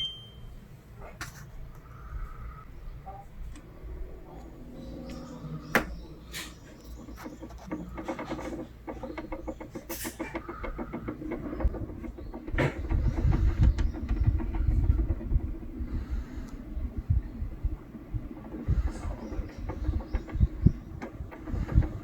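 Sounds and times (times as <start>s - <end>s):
air conditioner hum: 0.0s - 22.0s
low rumble: 2.0s - 7.2s
rapid clicking of louver: 4.4s - 22.0s.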